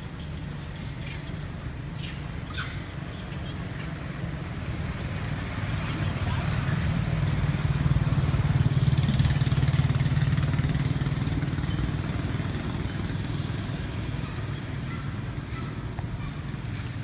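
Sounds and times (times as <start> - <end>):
vehicle engine running: 5.8 - 15.0.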